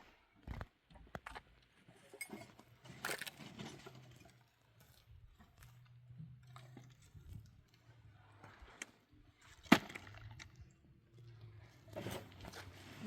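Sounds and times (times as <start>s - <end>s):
small objects clinking and crunching: 2.3s - 7.2s.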